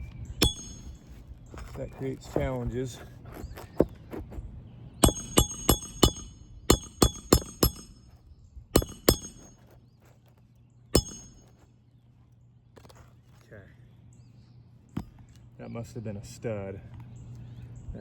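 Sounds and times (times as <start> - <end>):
hammer striking metal: 0.4 - 1.2, 5.0 - 8.1, 8.8 - 9.6, 11.0 - 11.5.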